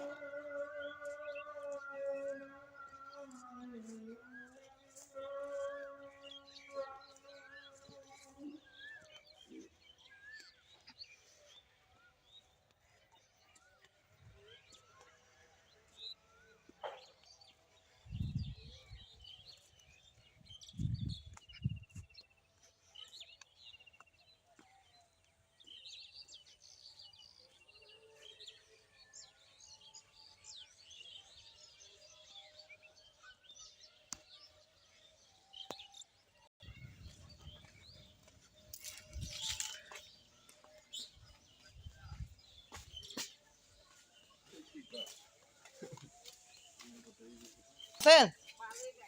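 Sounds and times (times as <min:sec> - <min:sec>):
small birds chirping: 0:00.0 - 0:49.0.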